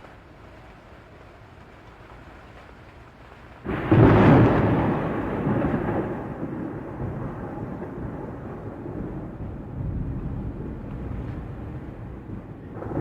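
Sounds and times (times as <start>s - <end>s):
rain hissing: 0.0s - 13.0s
thunder clap rumbling: 3.6s - 13.0s.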